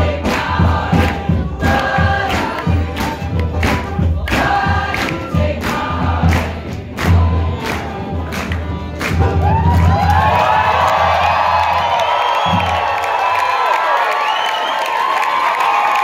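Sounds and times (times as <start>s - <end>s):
voices singing together: 0.0s - 10.4s
sharp percussive beat: 0.0s - 11.2s.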